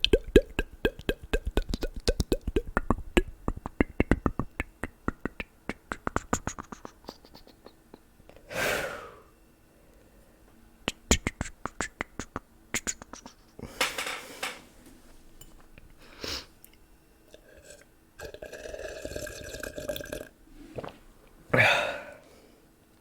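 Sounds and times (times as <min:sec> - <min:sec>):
tongue clicks and pops: 0:00.0 - 0:08.0, 0:10.9 - 0:13.4
sustained mouth noise: 0:00.0 - 0:08.1, 0:10.8 - 0:13.7, 0:17.3 - 0:21.0.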